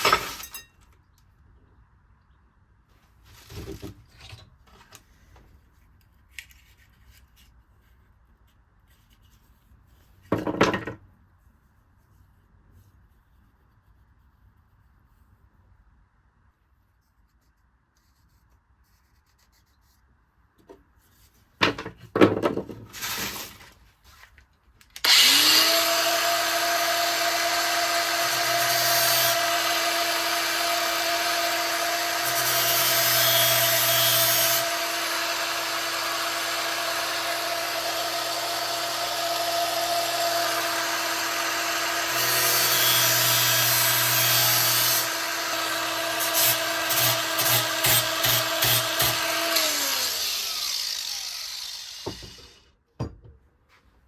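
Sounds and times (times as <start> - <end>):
power tool grinding: 25.0 - 52.6
power tool whining: 25.0 - 52.7
power tool knocked about: 51.7 - 53.4.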